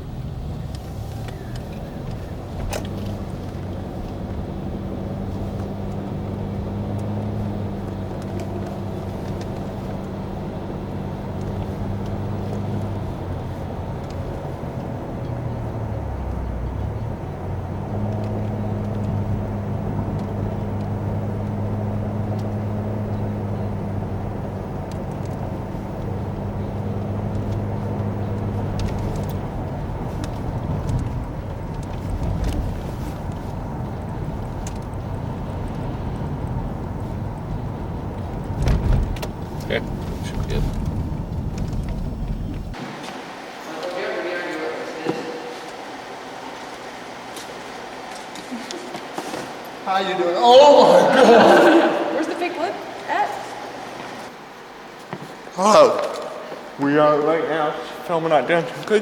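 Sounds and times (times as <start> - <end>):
vehicle engine hum: 0.0 - 59.0.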